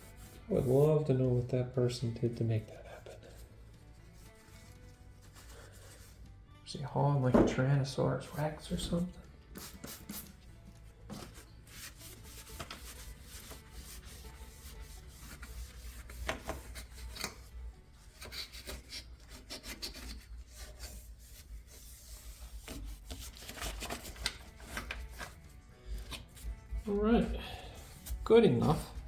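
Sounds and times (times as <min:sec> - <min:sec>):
rag scrubbing back and forth: 0:11.1 - 0:17.4.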